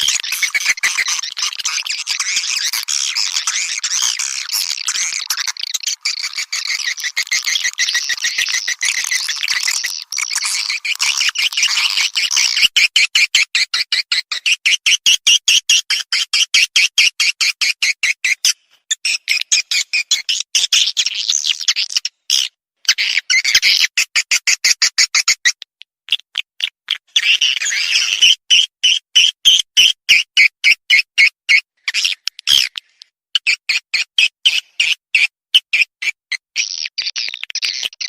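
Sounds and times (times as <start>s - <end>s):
swiftlet chirps and twittering: 0.0s - 12.8s.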